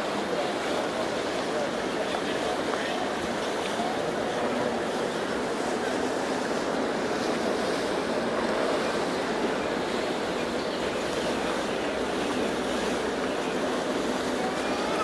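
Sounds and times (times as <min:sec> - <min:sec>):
rushing water: 0:00.0 - 0:15.0
wind: 0:00.0 - 0:15.0.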